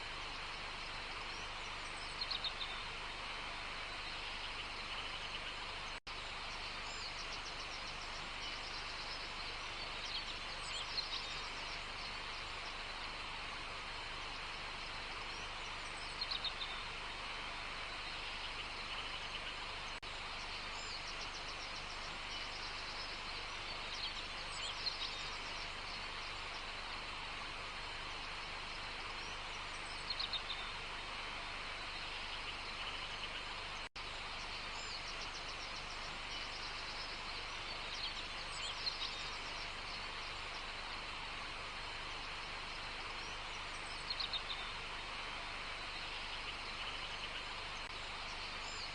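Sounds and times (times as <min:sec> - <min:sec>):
steady outdoor hiss: 0:00.0 - 0:48.9.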